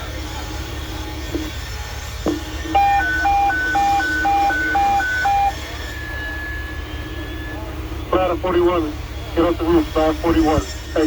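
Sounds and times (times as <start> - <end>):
radio click: 2.2 - 5.6
two-tone alert tone: 2.6 - 7.6.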